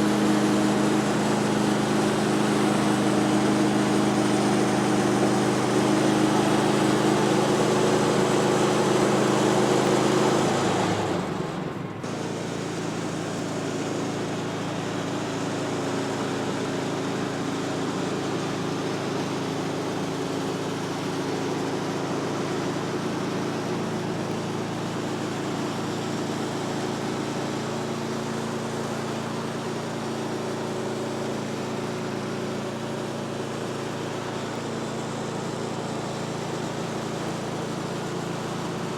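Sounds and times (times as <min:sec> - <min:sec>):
small gasoline engine running: 0:00.0 - 0:38.9.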